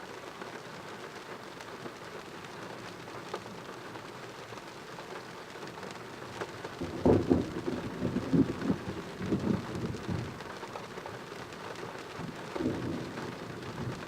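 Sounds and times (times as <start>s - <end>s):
steady rain falling: 0.0s - 14.0s
sharp raindrop ticks: 1.9s - 14.0s
crackling thunder rumble: 6.8s - 10.6s, 12.1s - 14.0s.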